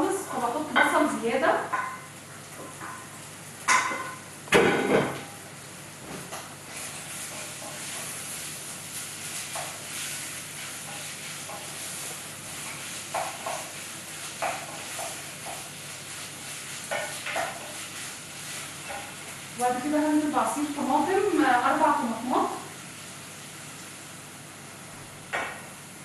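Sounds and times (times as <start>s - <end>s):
food sizzling in a pot: 0.0s - 26.0s
wooden spoon scraping a pot: 6.7s - 19.4s.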